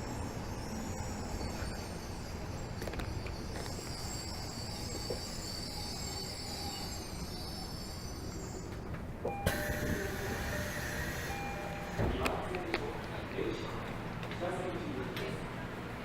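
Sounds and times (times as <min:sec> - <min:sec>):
train motor whine: 0:07.7 - 0:12.4.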